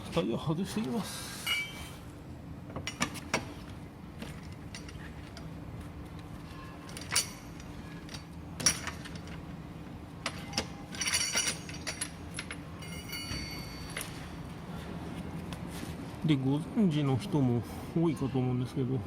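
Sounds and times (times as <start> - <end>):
steady low hum: 0.0 - 19.0
metal tools clinking on bolts: 1.4 - 1.8, 6.8 - 9.4, 10.2 - 14.2.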